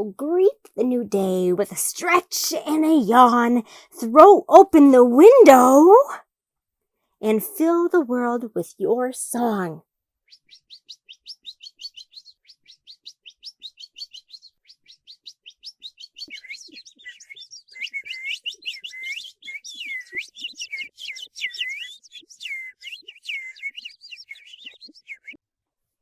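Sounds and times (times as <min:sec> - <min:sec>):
birds singing: 0:10.3 - 0:25.4.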